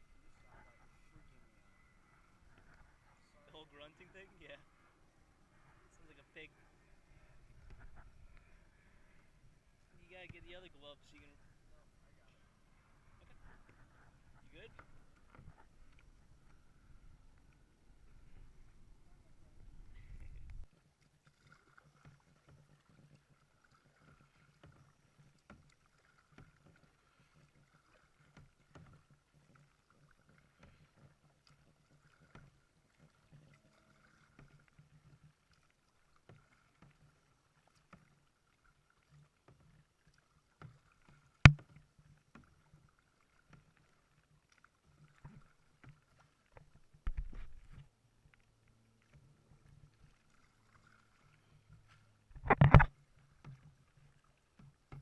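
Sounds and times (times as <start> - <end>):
low steady hum: 0.0 - 20.7
faint paddle knocks: 41.5 - 42.5, 54.6 - 55.0.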